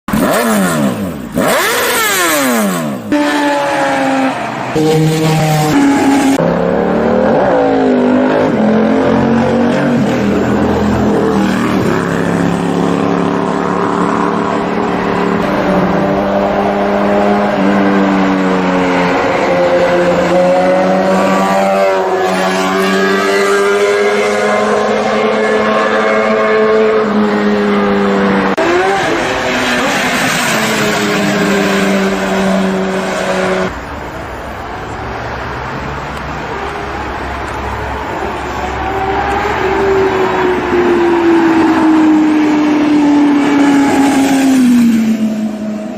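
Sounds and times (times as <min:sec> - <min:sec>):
motorcycle engine revving high: 0:00.1 - 0:33.8.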